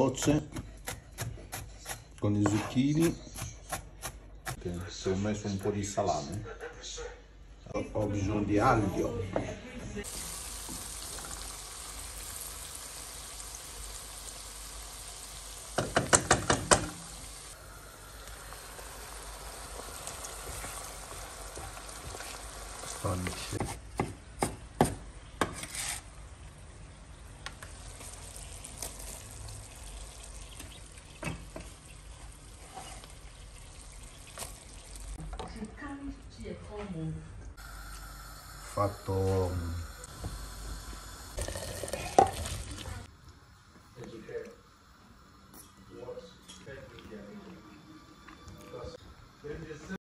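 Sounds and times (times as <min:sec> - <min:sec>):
food sizzling in a pan: 0:10.0 - 0:23.6, 0:27.6 - 0:35.3, 0:37.6 - 0:50.0.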